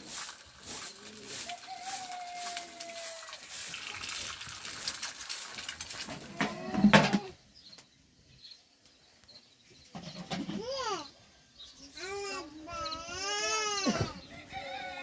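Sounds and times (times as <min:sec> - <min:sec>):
rough rustling background: 0:00.0 - 0:07.8.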